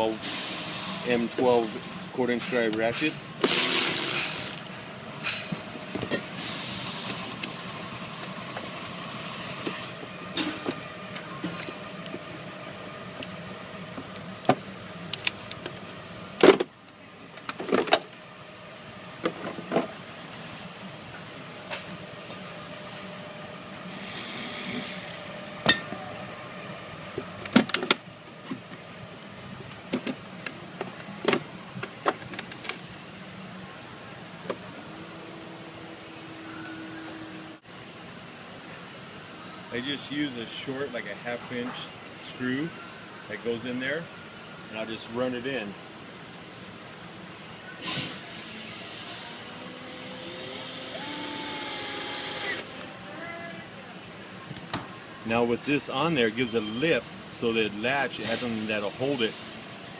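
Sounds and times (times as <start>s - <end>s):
metal tools clanking: 2.3s - 5.7s
small motor running: 3.4s - 4.7s, 24.0s - 25.4s, 48.6s - 52.7s.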